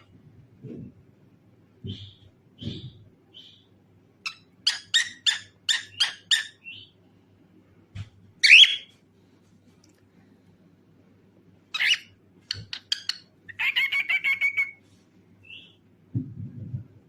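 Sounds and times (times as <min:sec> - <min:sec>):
cockatiel chirping: 0:04.3 - 0:06.9, 0:08.4 - 0:08.9, 0:11.7 - 0:14.8, 0:15.4 - 0:15.8.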